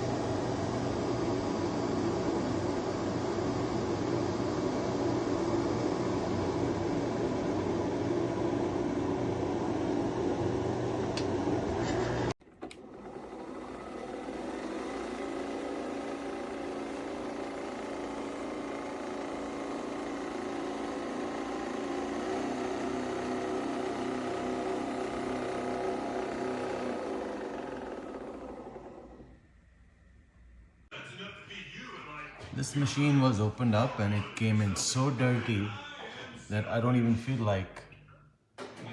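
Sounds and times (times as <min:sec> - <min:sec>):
coffee machine motor and pump hum: 0:00.0 - 0:29.5.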